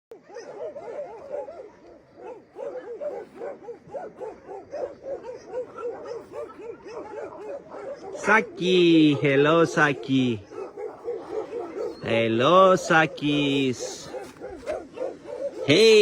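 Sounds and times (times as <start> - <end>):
dog whining: 10.5 - 12.1.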